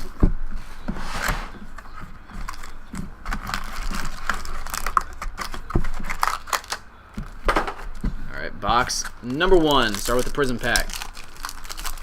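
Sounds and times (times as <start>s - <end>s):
trading card packs handled and opened: 1.2s - 8.1s, 8.8s - 12.0s.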